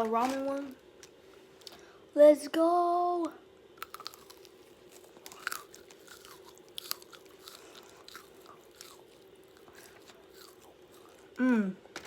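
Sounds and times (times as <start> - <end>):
crunchy biting and chewing: 3.8 - 11.4.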